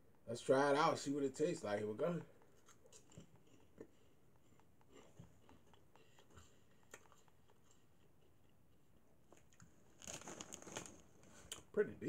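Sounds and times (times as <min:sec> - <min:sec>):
corn snack being chewed: 0:02.4 - 0:08.2, 0:09.3 - 0:11.7.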